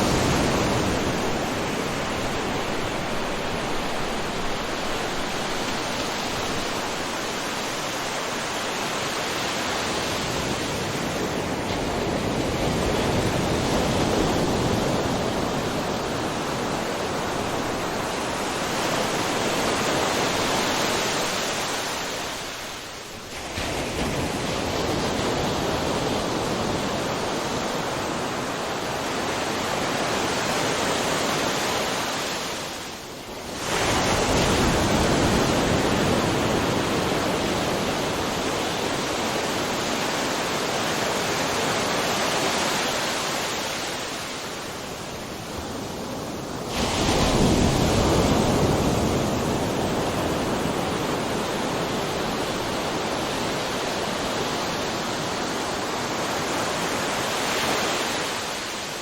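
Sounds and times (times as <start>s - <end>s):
ocean waves breaking: 0.0s - 59.0s
wave crashing: 30.7s - 59.0s.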